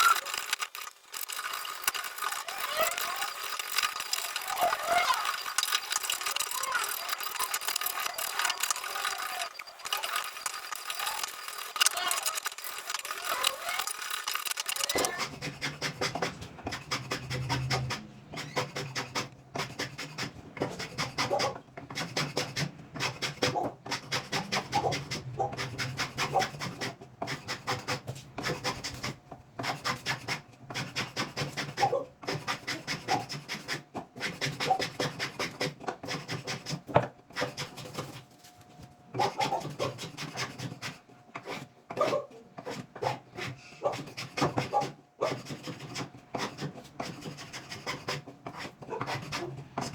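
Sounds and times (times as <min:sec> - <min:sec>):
hand tool strokes on wood: 0:42.6 - 0:49.9.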